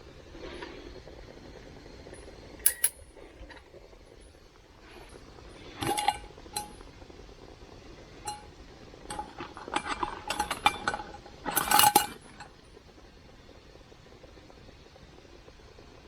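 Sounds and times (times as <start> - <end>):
metal cookware clinking: 2.6 - 3.0, 5.8 - 6.8, 8.3 - 12.5.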